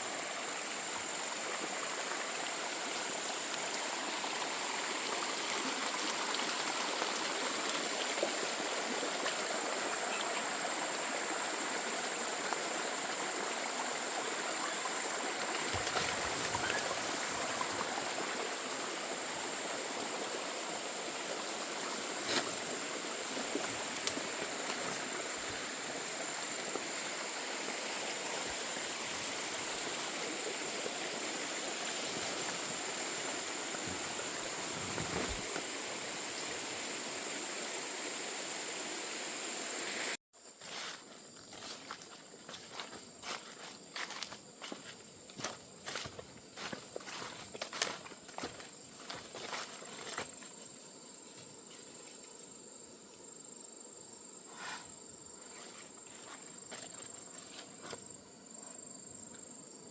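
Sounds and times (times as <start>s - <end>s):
water running in a stream: 0.0s - 40.2s.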